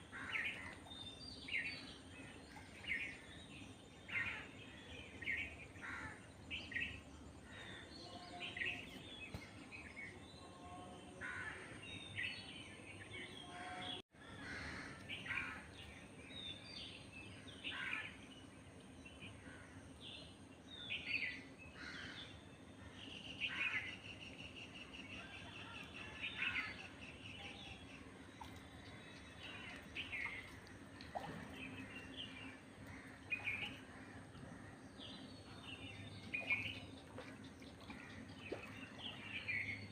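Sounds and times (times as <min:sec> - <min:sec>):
low background hum: 0:14.2 - 0:39.9.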